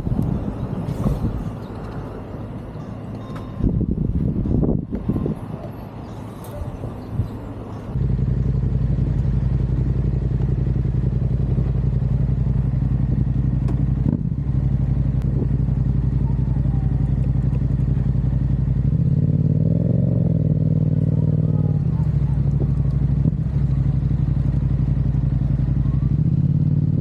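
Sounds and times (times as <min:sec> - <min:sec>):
motorcycle engine running: 0:07.9 - 0:27.0.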